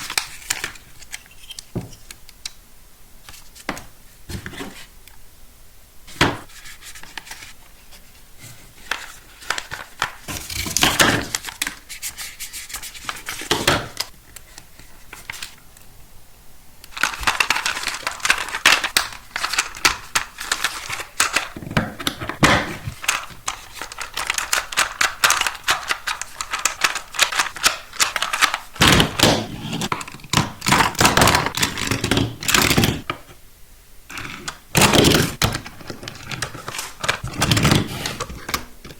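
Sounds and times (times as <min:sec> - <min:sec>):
packaging crackling and rustling: 0:08.7 - 0:12.0, 0:16.9 - 0:33.0, 0:34.2 - 0:38.9
plastic toy clicks and knocks: 0:16.9 - 0:33.1.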